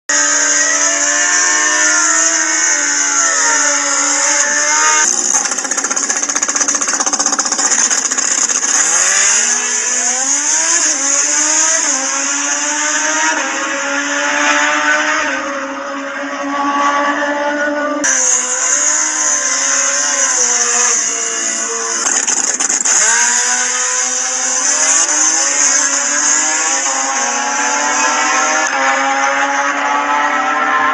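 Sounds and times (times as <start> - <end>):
racing motorcycle engines revving: 0.1 - 30.9.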